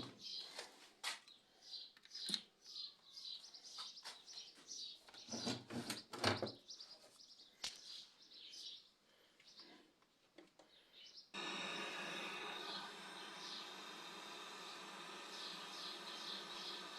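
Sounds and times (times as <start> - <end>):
small birds chirping: 0.0 - 11.4, 12.3 - 16.9.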